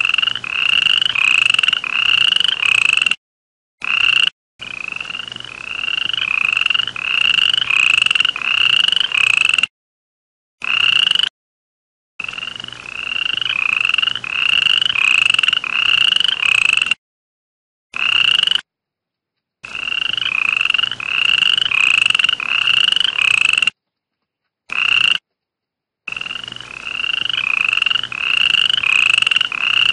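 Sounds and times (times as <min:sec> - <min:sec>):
toad trilling calls: 0:00.0 - 0:03.2, 0:03.8 - 0:09.7, 0:10.6 - 0:11.3, 0:12.2 - 0:17.0, 0:17.9 - 0:18.7, 0:19.6 - 0:23.8, 0:24.7 - 0:25.2, 0:26.1 - 0:29.9.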